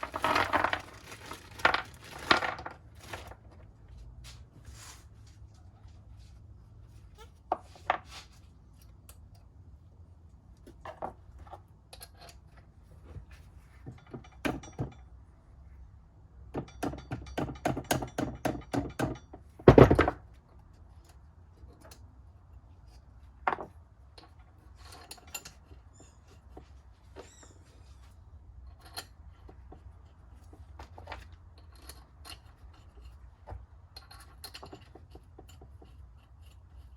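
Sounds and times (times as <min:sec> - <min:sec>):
metal tools clinking: 0:33.9 - 0:36.0.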